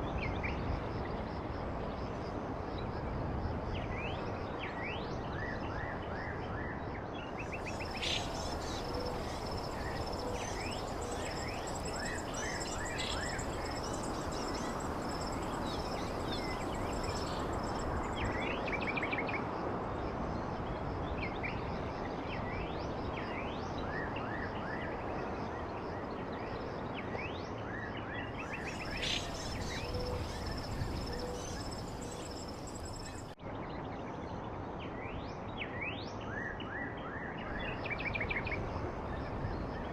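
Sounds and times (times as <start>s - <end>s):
small birds chirping: 7.4s - 18.6s, 28.4s - 33.4s
background hiss: 7.5s - 18.5s, 28.4s - 33.4s.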